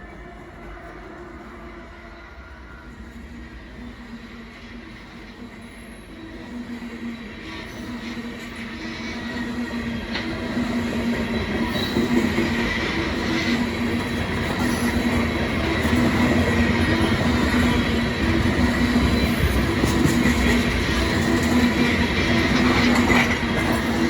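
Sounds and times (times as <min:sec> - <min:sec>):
freight train rolling past: 0:00.0 - 0:24.0
wheels squealing on rail: 0:05.7 - 0:24.0.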